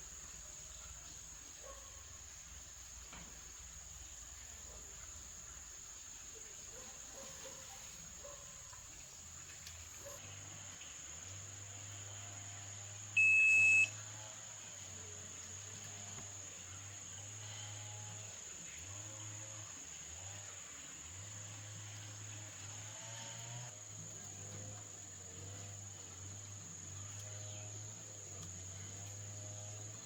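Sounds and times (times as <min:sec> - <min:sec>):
loud electronic beep: 0:13.2 - 0:13.9.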